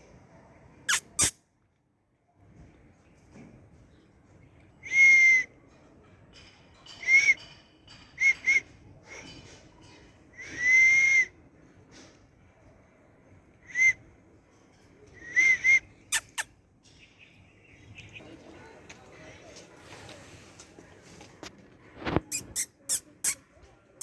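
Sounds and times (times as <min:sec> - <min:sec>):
kitten mewing: 0:00.9 - 0:01.4, 0:16.2 - 0:16.5.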